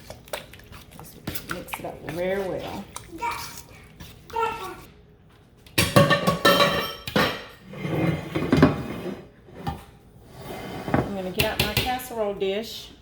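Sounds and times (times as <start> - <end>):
utensil scraping metal pot: 0.8 - 4.9.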